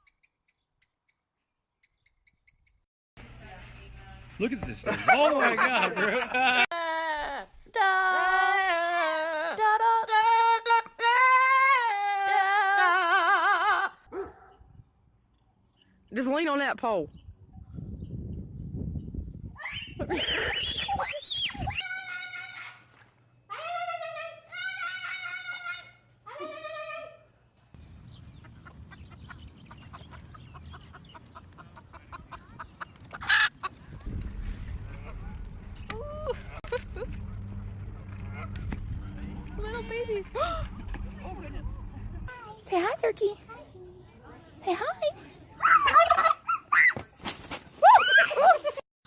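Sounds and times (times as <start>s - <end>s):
chicken clucking: 28.4s - 33.9s
low rumble: 34.0s - 42.3s.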